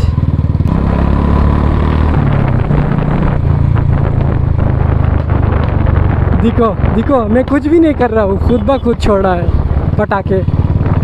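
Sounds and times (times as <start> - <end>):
motorcycle engine thumping: 2.0 - 8.8.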